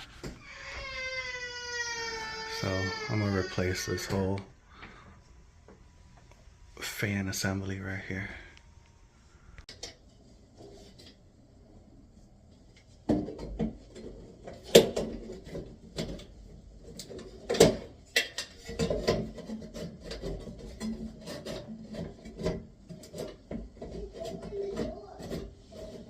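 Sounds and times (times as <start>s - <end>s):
rubbing and scraping: 0.0s - 0.8s, 18.3s - 26.0s.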